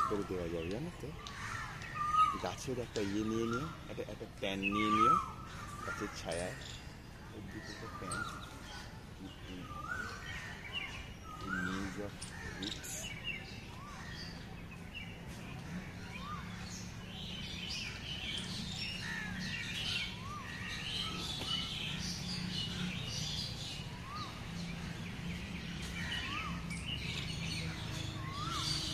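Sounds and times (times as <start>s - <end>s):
birds chirping: 0.0s - 28.9s.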